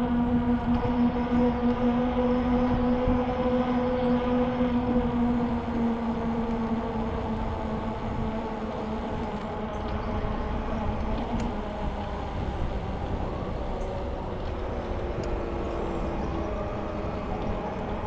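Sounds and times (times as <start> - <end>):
bicycle tires humming on road: 0.0 - 18.0
faint ticks: 5.2 - 10.0, 10.7 - 14.6.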